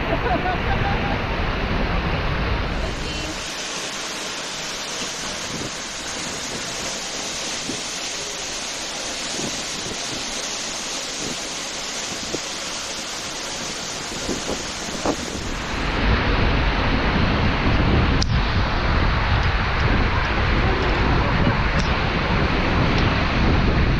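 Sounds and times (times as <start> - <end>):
waterfall rushing: 0.0 - 23.9
wind buffeting microphone: 4.6 - 23.9.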